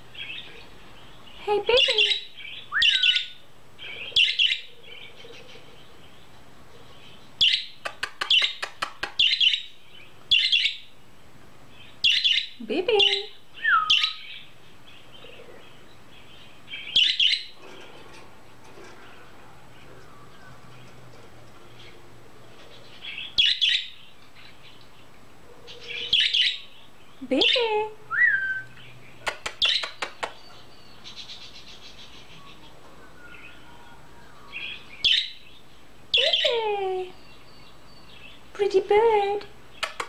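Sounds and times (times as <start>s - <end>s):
budgerigar chirping: 1.8s - 3.4s, 12.0s - 14.4s, 25.7s - 26.7s.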